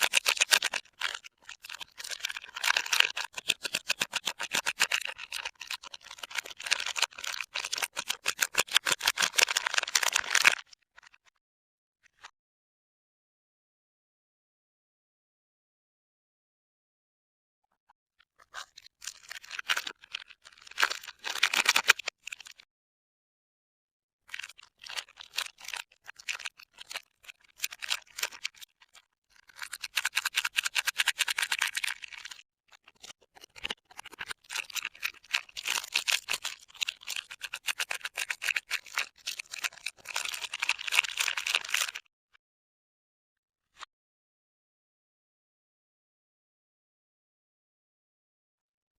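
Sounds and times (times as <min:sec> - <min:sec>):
wrapper crinkling and tearing: 0:00.0 - 0:10.6, 0:19.0 - 0:22.4, 0:38.0 - 0:42.0.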